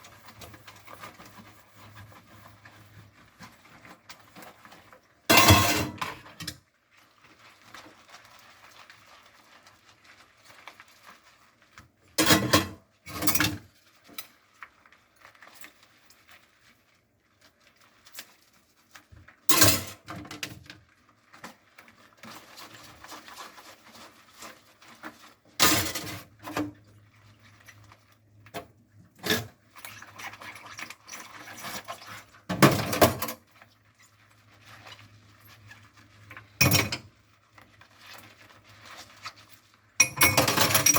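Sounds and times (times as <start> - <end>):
scrubbing dishes: 0.0 - 6.6, 40.0 - 40.9
dishes clinking and knocking: 40.0 - 40.9.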